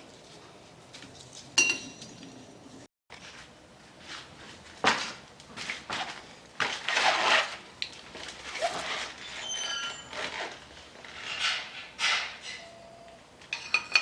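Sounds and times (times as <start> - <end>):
metallic ring: 12.4 - 14.0.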